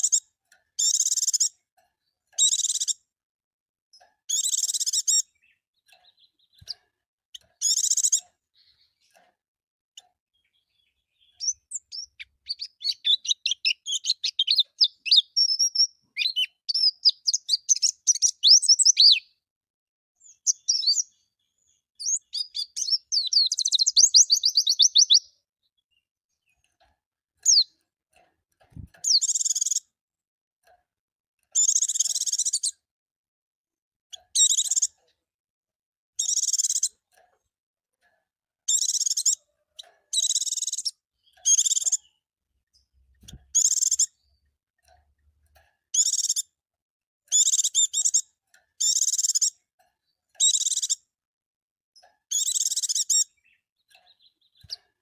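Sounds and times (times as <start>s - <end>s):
bird chirping and trilling: 0.0s - 0.2s, 0.8s - 1.6s, 2.4s - 3.0s, 4.2s - 9.1s, 10.3s - 19.4s, 20.2s - 26.6s, 27.4s - 27.8s, 28.7s - 29.9s, 31.5s - 32.8s, 34.1s - 34.9s, 36.2s - 37.0s, 38.7s - 42.2s, 43.0s - 44.4s, 45.9s - 46.5s, 47.3s - 49.6s, 50.4s - 51.0s, 52.3s - 54.9s.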